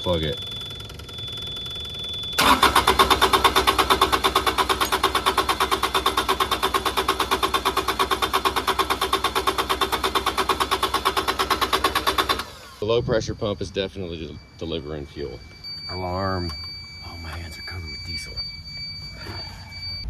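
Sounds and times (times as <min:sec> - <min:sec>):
diesel engine cranking on starter: 0:00.0 - 0:13.7.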